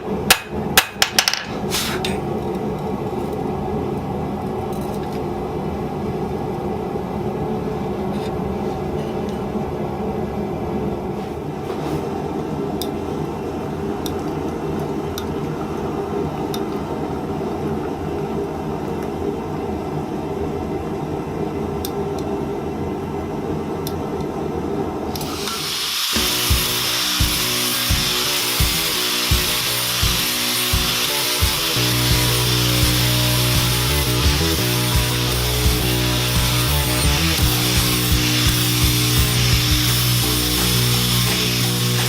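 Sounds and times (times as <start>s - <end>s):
power tool high hiss: 25.2s - 42.0s
background music with beat: 26.2s - 42.0s.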